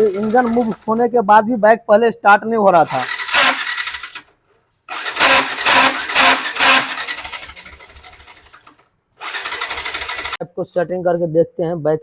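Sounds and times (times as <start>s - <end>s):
electric starter cranking engine: 0.0s - 1.1s, 2.8s - 10.4s.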